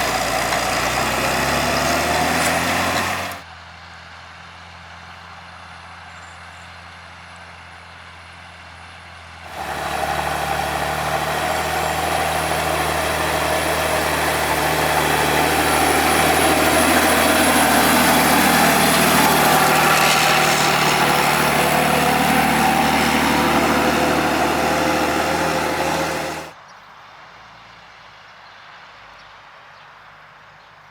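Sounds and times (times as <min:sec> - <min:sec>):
tractor diesel engine running: 0:00.0 - 0:03.4, 0:09.5 - 0:26.6.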